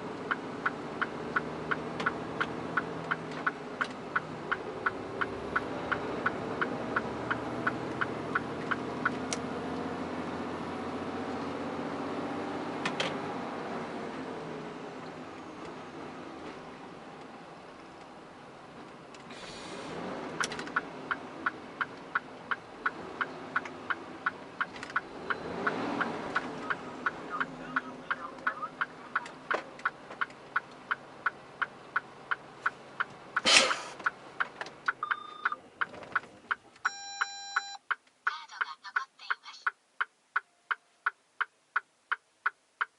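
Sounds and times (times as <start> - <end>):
indicator relay ticking: 0.2 - 9.2, 20.4 - 35.6, 36.5 - 42.9
short loud air hiss: 33.5 - 34.0
electronic warning chime: 36.9 - 37.8.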